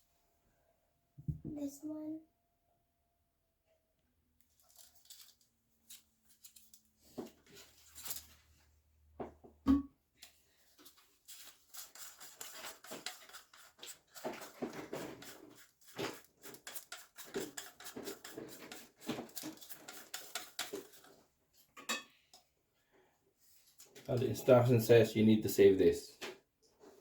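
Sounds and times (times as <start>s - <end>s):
plastic parts clicking and rustling: 4.5s - 8.4s, 10.8s - 21.1s.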